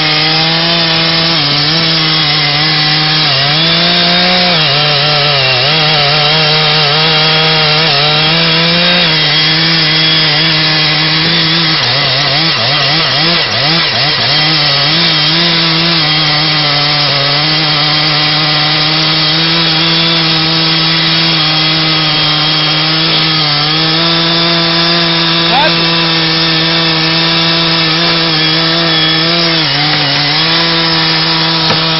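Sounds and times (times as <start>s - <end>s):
chainsaw cutting wood: 0.0s - 31.9s.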